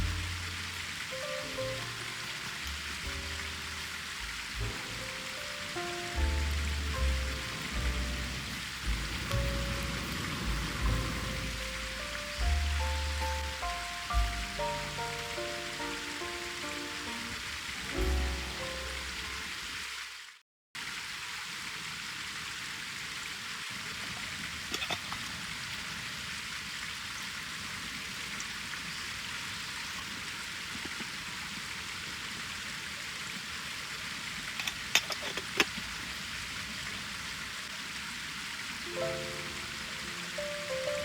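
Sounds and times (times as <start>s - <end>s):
campfire hissing: 0.0s - 41.0s
fire crackles and pops: 6.2s - 14.8s.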